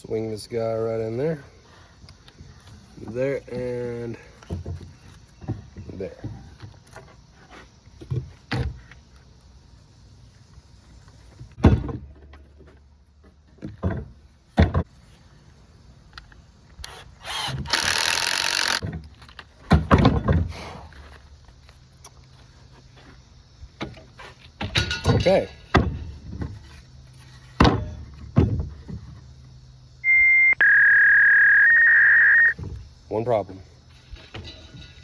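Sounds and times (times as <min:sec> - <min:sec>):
power drill driving screw: 0:16.8 - 0:18.8.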